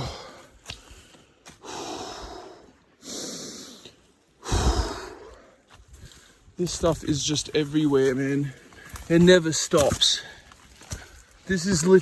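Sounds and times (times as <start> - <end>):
man breathing hard: 0.0 - 6.5.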